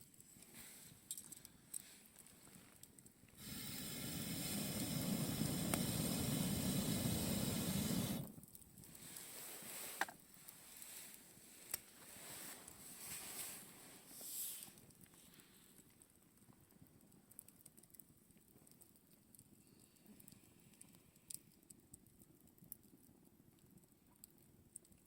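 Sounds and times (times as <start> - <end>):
burning wood crackling: 0.0 - 25.0
rushing hiss at fire: 3.4 - 8.3, 9.0 - 11.2, 12.1 - 15.4.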